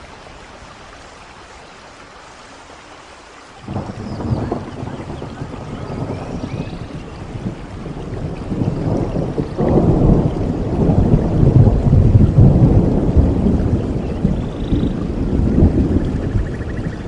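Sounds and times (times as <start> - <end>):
steady rainfall: 0.0 - 17.0
rolling thunder: 3.6 - 17.0.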